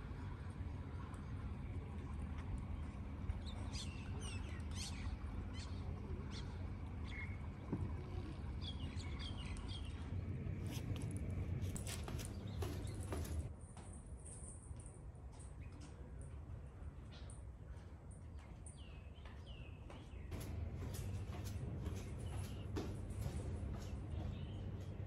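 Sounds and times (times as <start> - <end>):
steady low hum: 0.0 - 14.0, 20.2 - 25.0
small birds chirping: 3.4 - 10.9, 11.7 - 13.5, 18.3 - 25.0.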